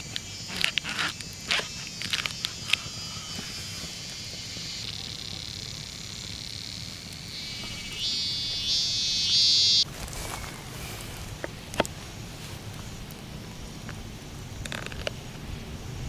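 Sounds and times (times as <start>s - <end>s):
insect buzzing: 0.0s - 11.4s.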